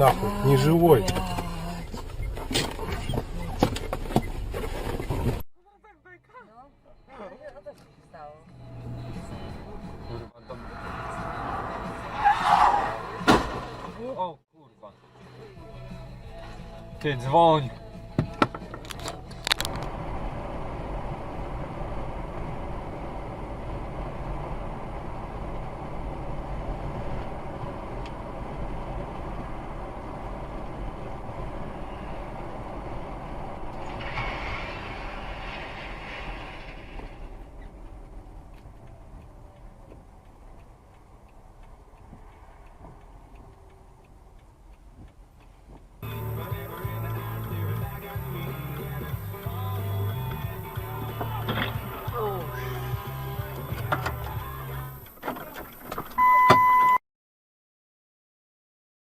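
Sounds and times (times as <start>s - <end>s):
vehicle rumble with hiss: 18.7s - 56.0s.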